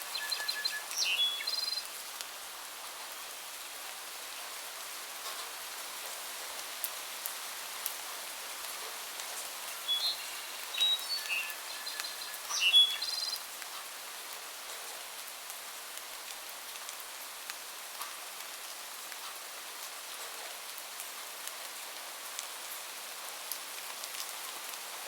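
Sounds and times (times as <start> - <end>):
small birds chirping: 0.0 - 2.0, 9.7 - 13.6
rain hissing: 0.0 - 3.2, 6.2 - 14.4.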